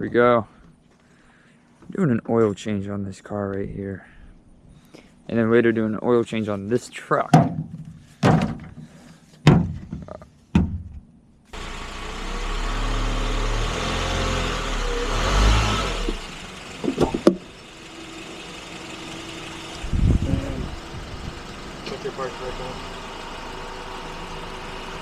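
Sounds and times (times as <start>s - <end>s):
car engine starting and idling: 11.5s - 25.0s.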